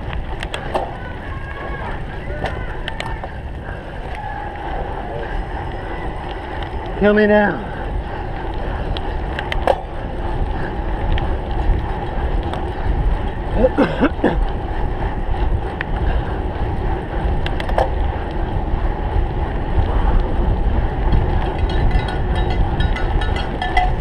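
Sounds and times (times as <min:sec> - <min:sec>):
bike clicks and rattles: 0:00.0 - 0:24.0
wind buffeting microphone: 0:00.0 - 0:24.0.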